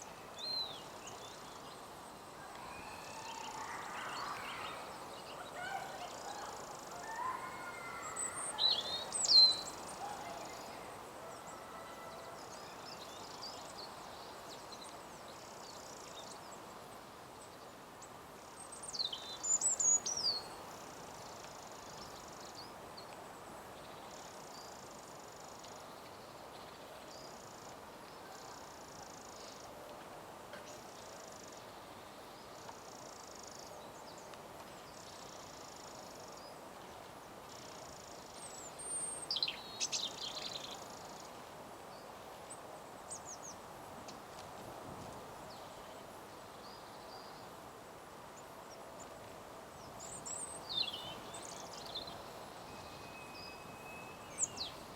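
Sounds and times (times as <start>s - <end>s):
background noise: 0.0s - 54.9s
wild birds calling: 2.4s - 12.6s
faint high buzz: 51.9s - 54.9s.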